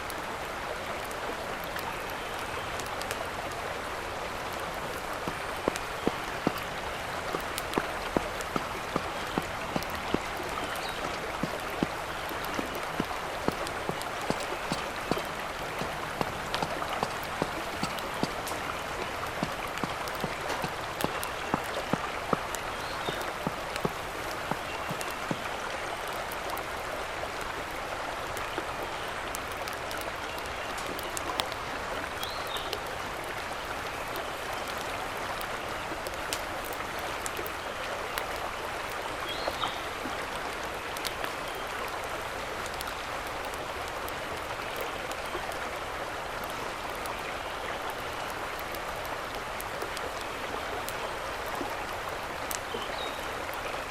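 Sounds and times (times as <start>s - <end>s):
mountain stream rushing: 0.0s - 53.9s
sharp clicks and pops: 5.2s - 25.6s.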